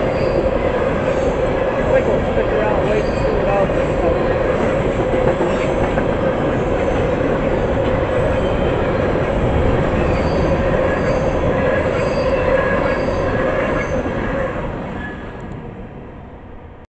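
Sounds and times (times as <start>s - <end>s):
wheel squeal: 0.0s - 0.5s, 9.9s - 14.4s
train wheels rumbling on rail: 0.0s - 16.8s.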